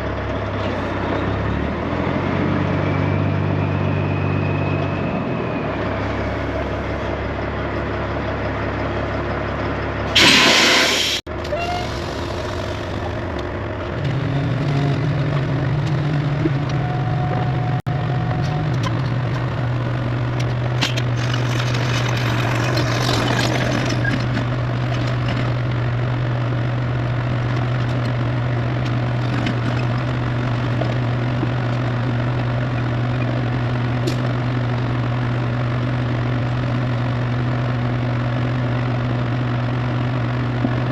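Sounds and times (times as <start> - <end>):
heavy diesel engine running: 0.0 - 40.9
air release hiss: 10.2 - 12.3.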